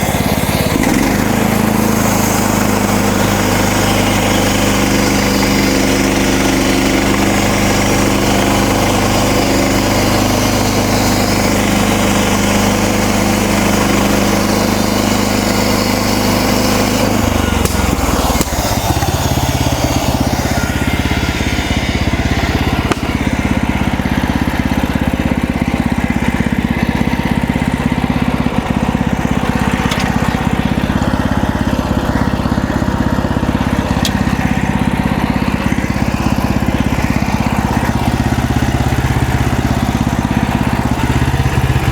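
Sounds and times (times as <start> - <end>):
saw blade cutting log: 0.0 - 41.9
sawmill engine running: 0.0 - 41.9.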